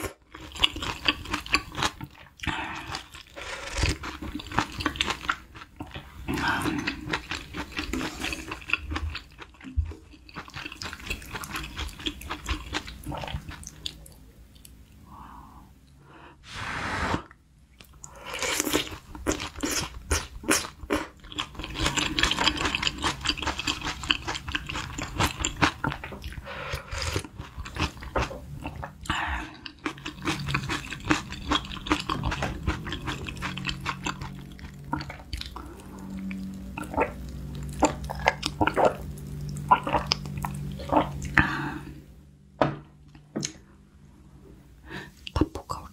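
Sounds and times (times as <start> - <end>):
brief louder rush: 16.4 - 17.3.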